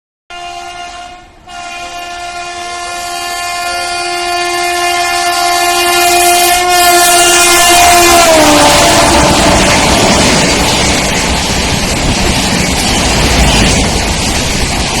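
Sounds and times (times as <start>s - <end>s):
train horn blasts: 0.3s - 10.5s.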